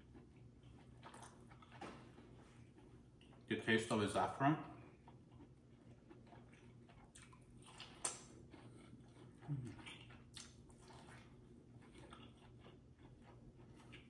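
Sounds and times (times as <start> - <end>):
chewing and wet mouth clicks: 0.0 - 1.9, 2.6 - 3.5, 4.8 - 14.0
person humming mm: 9.5 - 9.8.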